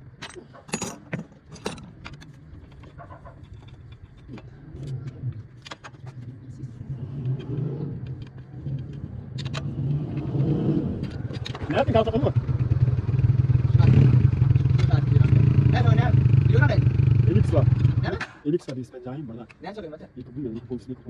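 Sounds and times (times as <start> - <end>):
clicks and clatter: 0.0 - 6.4, 11.0 - 11.7
motorcycle engine drone: 2.1 - 18.2.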